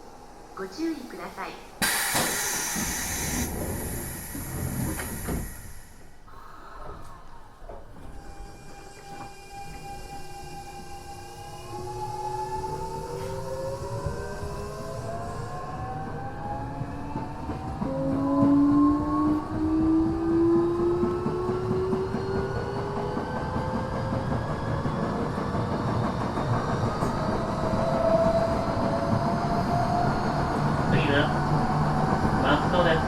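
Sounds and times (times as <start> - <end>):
train wheels clattering on rails: 1.8 - 6.2, 16.7 - 33.0.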